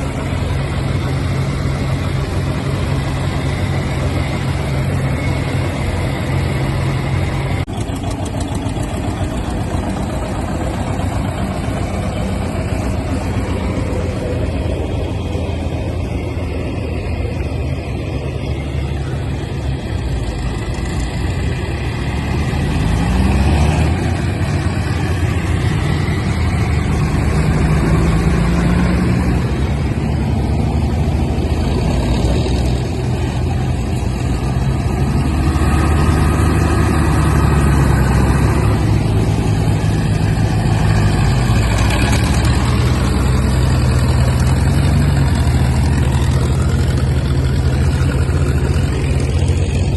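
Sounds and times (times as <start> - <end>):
tractor engine revving: 0.0 - 49.9.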